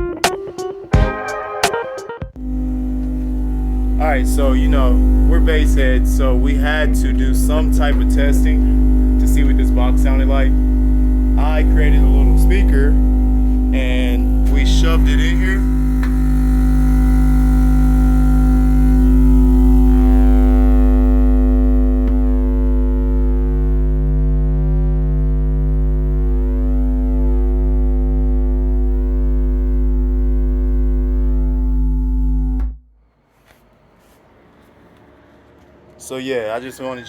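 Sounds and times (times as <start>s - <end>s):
buzz of overtones: 0.0s - 32.8s
subwoofer deep bass tone: 2.4s - 32.8s.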